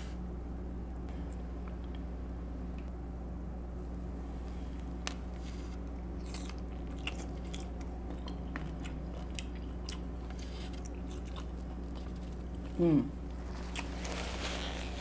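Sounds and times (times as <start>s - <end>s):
chewing and crunching mouth sounds: 5.1s - 15.0s.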